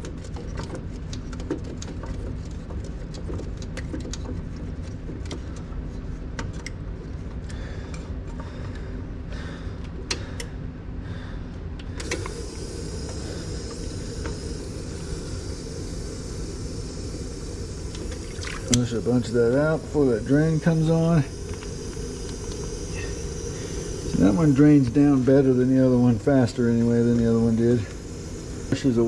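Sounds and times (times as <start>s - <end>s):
steady low hum: 0.0s - 29.0s
running water hiss: 12.0s - 29.0s.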